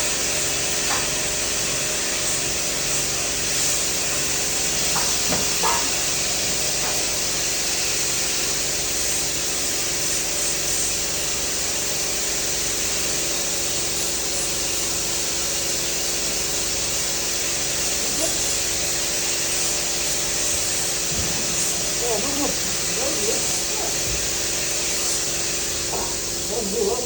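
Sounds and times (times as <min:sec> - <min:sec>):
welding arc hissing: 0:00.0 - 0:27.0
steady hum: 0:17.6 - 0:27.0.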